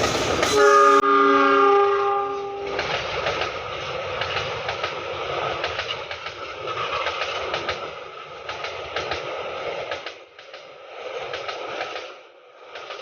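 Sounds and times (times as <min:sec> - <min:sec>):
rail joint clicks: 0:00.0 - 0:01.0, 0:02.3 - 0:13.0
train wheels rumbling: 0:00.0 - 0:13.0.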